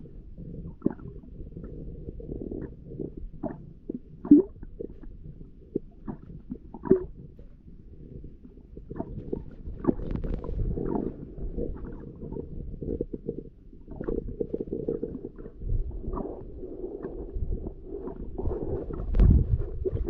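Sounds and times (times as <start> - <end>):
muffled underwater rumble: 0.0 - 20.0
bubbly clicks and pops: 4.2 - 5.1, 5.7 - 7.3, 8.9 - 16.4, 18.1 - 20.0.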